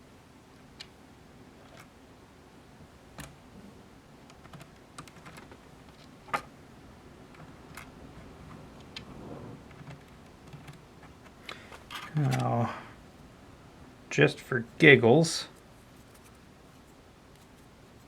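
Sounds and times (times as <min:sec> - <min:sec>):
plastic parts clicking and tapping: 0:04.3 - 0:06.5, 0:07.3 - 0:12.5.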